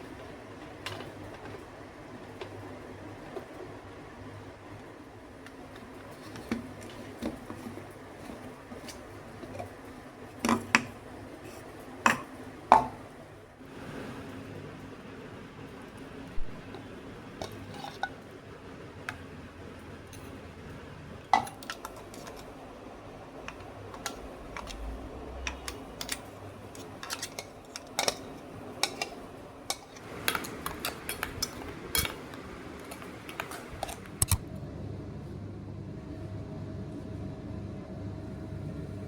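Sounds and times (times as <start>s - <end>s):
steady low hum: 16.2s - 39.0s
utensils clinking on dishes: 17.4s - 18.2s, 21.3s - 22.6s, 23.4s - 34.4s.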